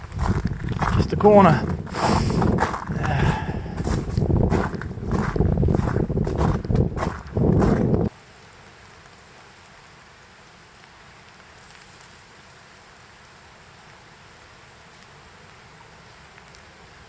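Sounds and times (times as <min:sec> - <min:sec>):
light rain falling: 0:08.1 - 0:17.0.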